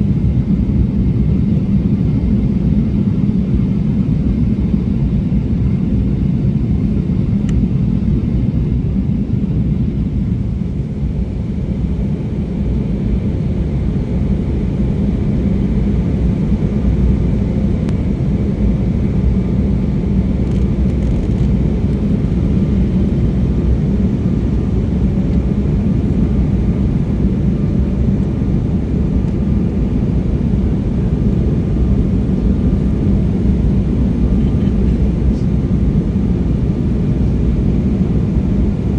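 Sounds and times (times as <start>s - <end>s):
airliner cabin engine drone: 0.0s - 38.9s.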